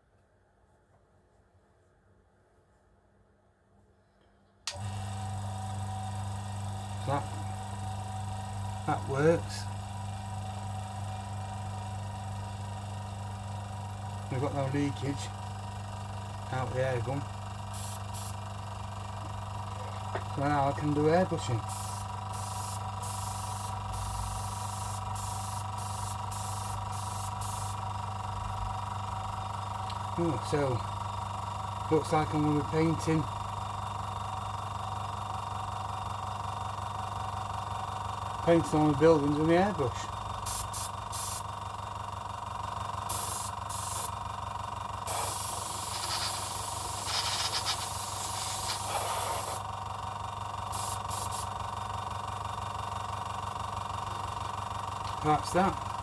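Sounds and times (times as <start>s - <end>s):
air compressor humming: 4.7s - 56.0s
air gun hissing: 17.7s - 18.4s, 21.6s - 27.8s, 40.4s - 41.5s, 43.1s - 44.2s, 45.0s - 49.7s, 50.7s - 51.6s.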